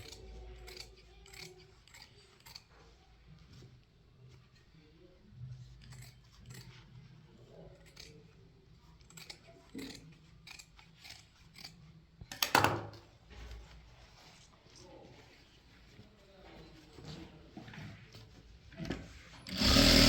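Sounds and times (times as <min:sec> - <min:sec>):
scissors snipping: 0:00.0 - 0:02.7.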